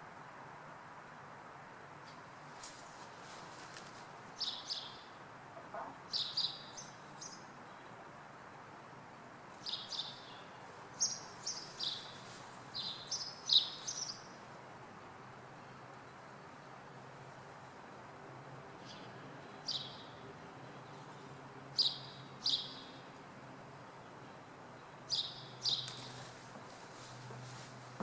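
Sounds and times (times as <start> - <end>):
faint city hum: 0.0 - 28.0
small birds chirping: 2.1 - 8.1, 9.6 - 17.8, 18.7 - 23.2, 23.8 - 28.0.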